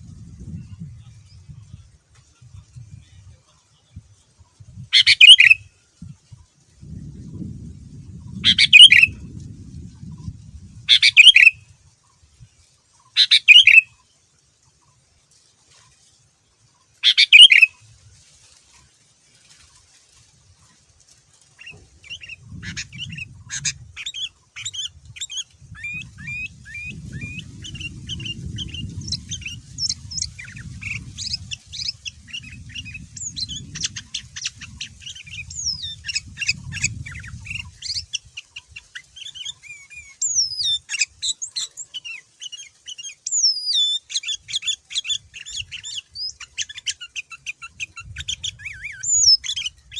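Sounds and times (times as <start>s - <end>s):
bulbul singing: 5.0s - 5.6s, 8.2s - 9.3s, 10.9s - 11.6s, 13.2s - 13.9s, 17.0s - 17.8s, 21.6s - 49.9s.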